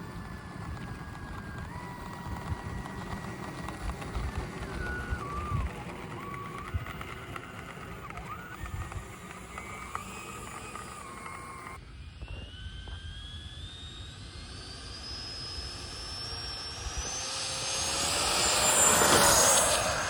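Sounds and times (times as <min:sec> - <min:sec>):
electric jet model whining: 0:00.0 - 0:20.0.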